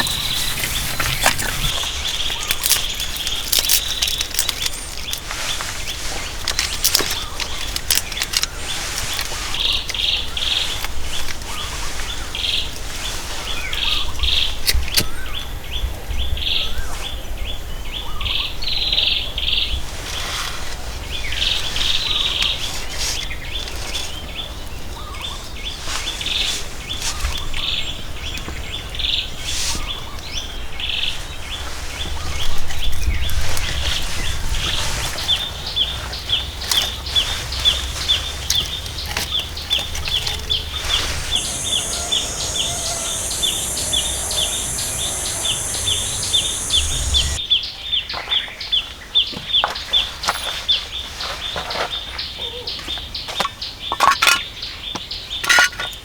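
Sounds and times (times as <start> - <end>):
birds chirping: 0.0 - 10.9, 36.2 - 47.4.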